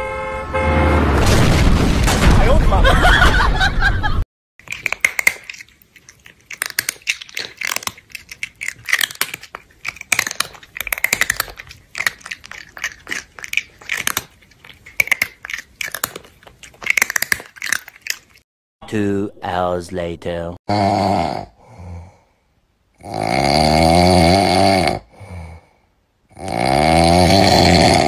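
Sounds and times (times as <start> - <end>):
crunching and chewing: 4.6 - 18.5.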